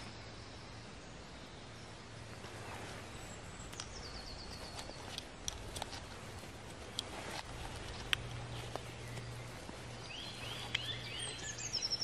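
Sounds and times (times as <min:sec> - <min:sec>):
sharp clicks: 0:04.6 - 0:09.8
songbird trilling: 0:08.5 - 0:12.0.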